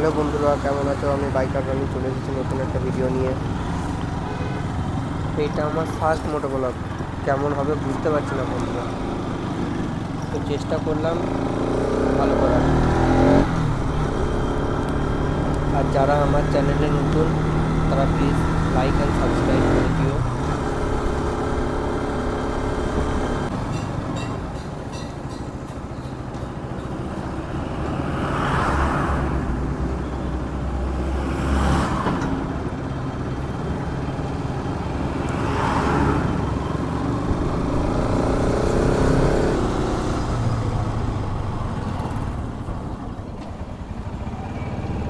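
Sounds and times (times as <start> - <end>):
road traffic: 0.0 - 45.0
motorcycle engine running: 1.4 - 23.6, 32.5 - 45.0.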